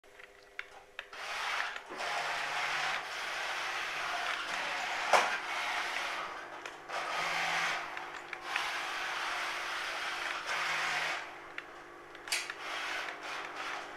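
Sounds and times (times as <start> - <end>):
toy car wheels rasping: 12.4 - 13.9.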